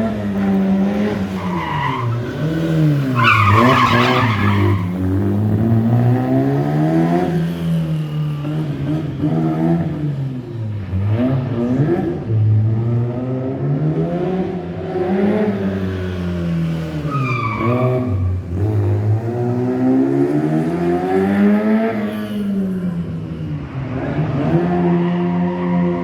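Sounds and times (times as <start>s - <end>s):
rally car engine revving: 0.0s - 26.0s
high-pitched tyre squeal: 0.1s - 5.8s, 6.9s - 10.1s, 15.5s - 19.0s, 24.6s - 26.0s.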